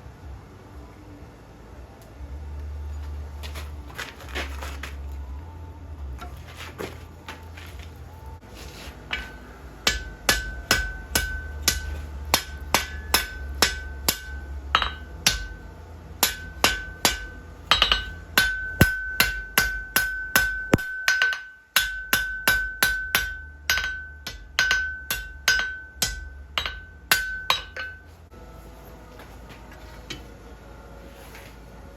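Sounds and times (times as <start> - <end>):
hammer striking iron on anvil: 9.0 - 28.1.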